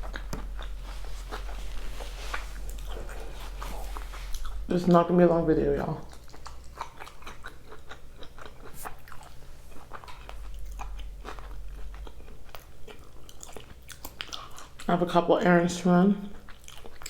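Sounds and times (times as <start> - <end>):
mouth clicks and crunches: 0.0 - 4.7
person chewing and biting: 0.0 - 4.7, 6.0 - 14.9, 16.4 - 17.0.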